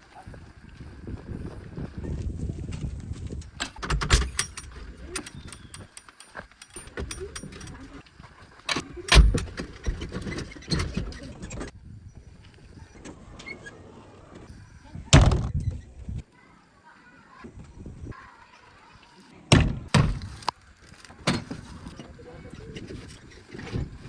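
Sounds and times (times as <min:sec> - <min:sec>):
knocks and clanks: 0:03.2 - 0:08.0, 0:08.7 - 0:11.7, 0:15.1 - 0:15.9.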